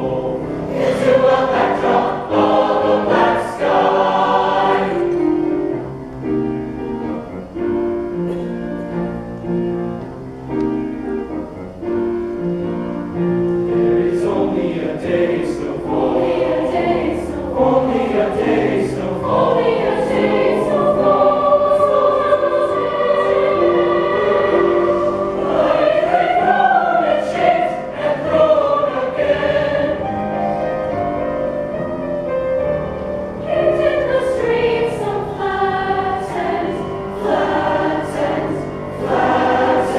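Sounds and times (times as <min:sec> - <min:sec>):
choir singing: 0:00.0 - 0:05.9, 0:13.6 - 0:31.7, 0:33.3 - 0:39.9.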